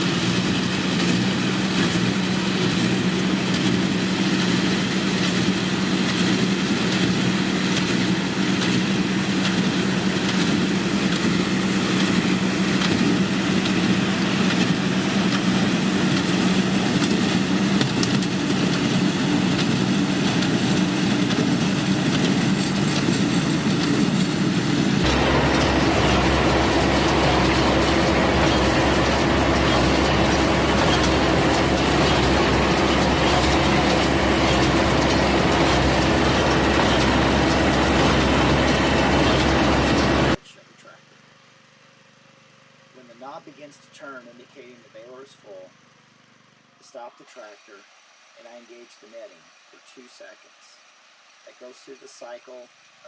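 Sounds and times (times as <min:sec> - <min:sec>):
machine low rumble: 0:00.0 - 0:40.5
tractor and hay baler running: 0:00.0 - 0:40.9.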